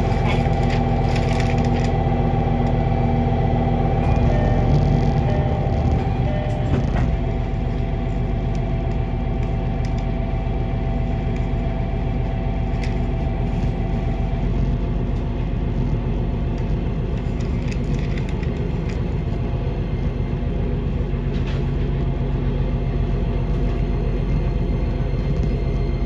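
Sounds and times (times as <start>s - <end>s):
train rumble: 0.0s - 26.0s
steady high tone: 3.6s - 9.3s.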